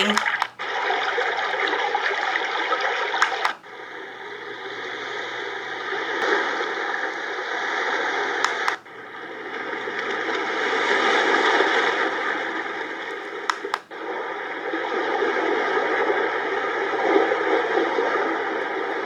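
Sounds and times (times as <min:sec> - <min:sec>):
water trickling from small speaker: 0:00.0 - 0:03.7
button click: 0:03.2 - 0:03.6, 0:08.5 - 0:08.8, 0:13.5 - 0:13.9.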